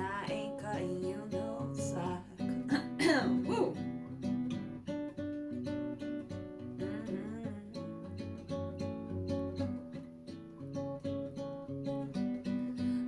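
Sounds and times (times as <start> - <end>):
person singing: 0.0 - 3.8, 6.8 - 8.0
acoustic guitar strumming: 0.0 - 13.0.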